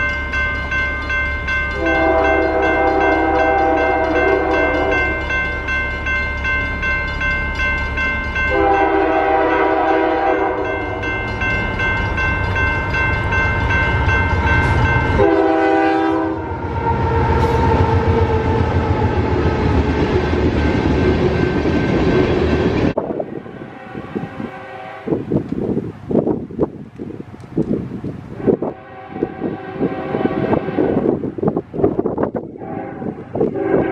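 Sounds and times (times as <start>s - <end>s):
locomotive rumble: 0.0s - 33.9s
railcars clickety-clack: 0.0s - 33.9s
train horn blasts: 1.7s - 5.3s, 8.5s - 11.4s, 14.2s - 18.4s, 23.0s - 25.4s, 28.4s - 31.4s, 32.5s - 33.9s.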